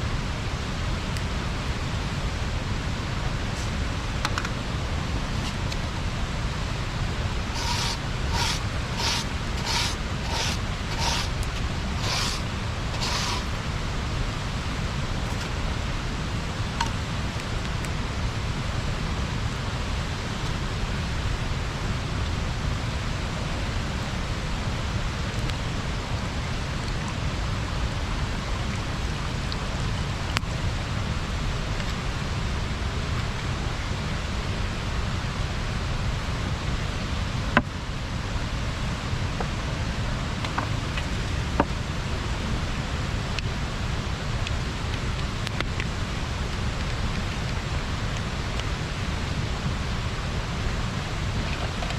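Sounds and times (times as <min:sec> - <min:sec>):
water rushing over a weir: 0:00.8 - 0:33.6.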